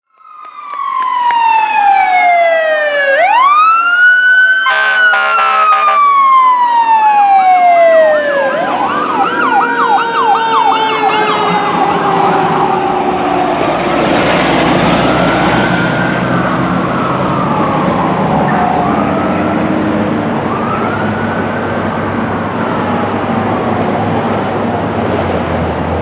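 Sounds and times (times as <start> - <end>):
fire engine siren wailing: 0.0 - 26.0
siren warbling: 0.1 - 24.7
air horn blasts: 4.6 - 6.0, 10.6 - 12.5.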